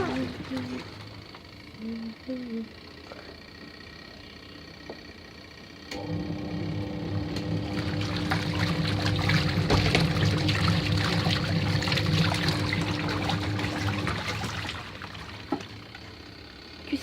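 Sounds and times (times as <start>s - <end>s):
water gushing in washing machine: 0.0s - 1.8s, 6.0s - 16.8s
low electric hum: 0.0s - 17.0s.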